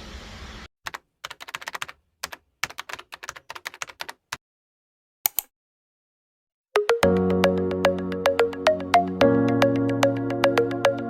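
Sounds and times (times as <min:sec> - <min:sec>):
keyboard typing clicks: 0:05.3 - 0:05.5.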